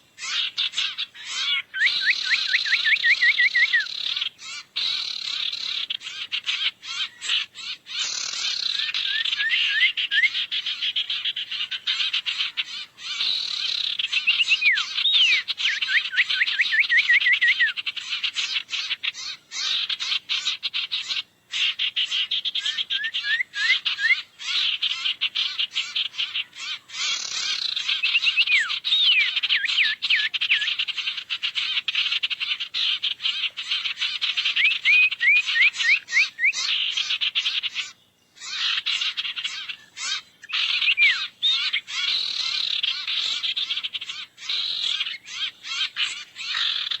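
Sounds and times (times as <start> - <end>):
small birds chattering: 0.0 - 47.0
rising whistled chirps: 1.2 - 3.9, 8.2 - 10.4, 14.0 - 17.8, 22.6 - 24.3, 34.4 - 36.7, 40.4 - 42.0.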